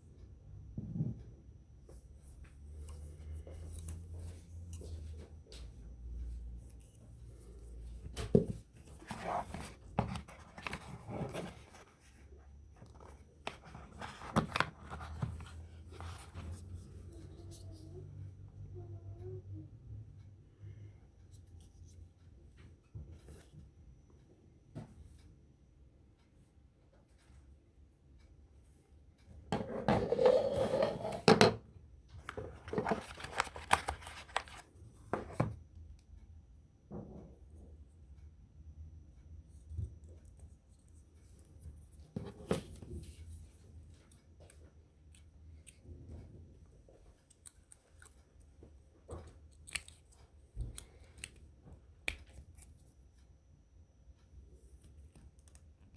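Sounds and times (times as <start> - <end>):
packaging rustling: 32.4 - 34.6.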